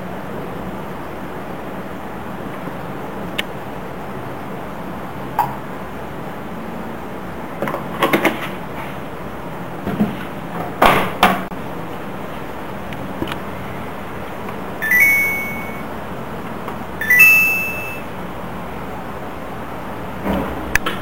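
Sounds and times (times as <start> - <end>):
washing machine beep tunes: 14.8 - 15.9, 17.0 - 18.1.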